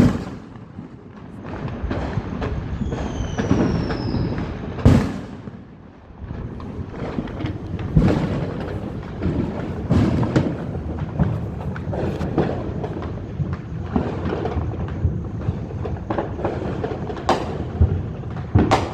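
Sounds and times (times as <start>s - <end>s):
fireworks booming: 0.0s - 18.9s
fireworks crackling: 0.0s - 18.9s.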